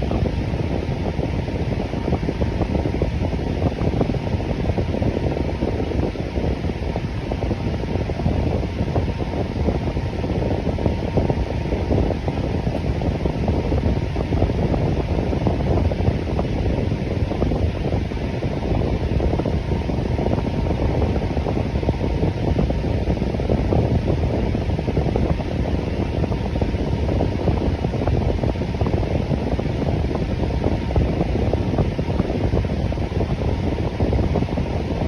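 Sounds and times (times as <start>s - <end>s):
electric fan whooshing: 0.0s - 35.0s.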